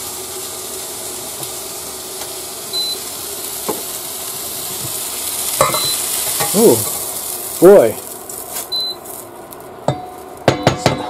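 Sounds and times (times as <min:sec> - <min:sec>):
vegetables sizzling in a wok: 0:00.0 - 0:11.0
short high beep: 0:02.8 - 0:03.0, 0:08.7 - 0:09.0.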